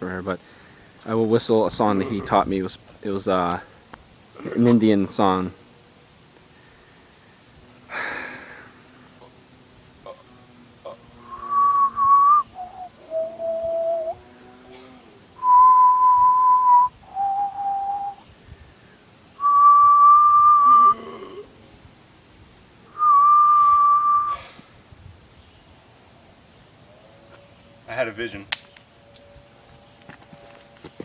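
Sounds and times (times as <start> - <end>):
man whistling a slow tune: 11.3 - 14.2, 15.4 - 18.2, 19.4 - 21.0, 23.0 - 24.5.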